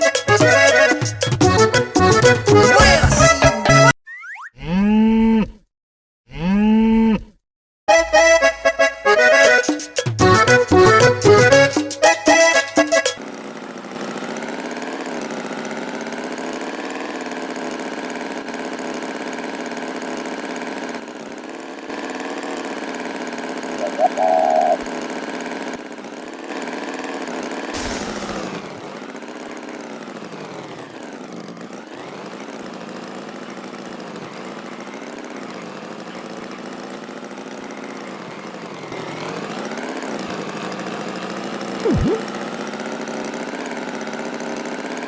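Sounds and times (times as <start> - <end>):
engine running: 13.0 - 45.0
short high tone: 41.8 - 42.2
falling tone: 41.8 - 42.3.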